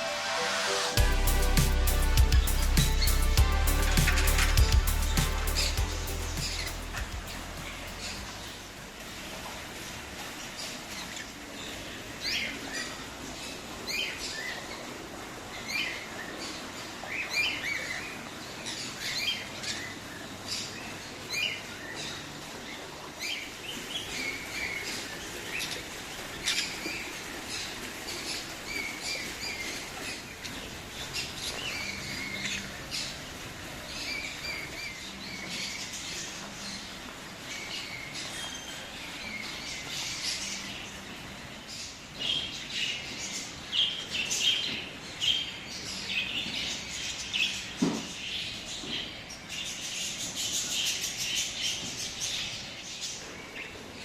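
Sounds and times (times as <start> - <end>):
birds chirping and calling: 1.0 - 8.5.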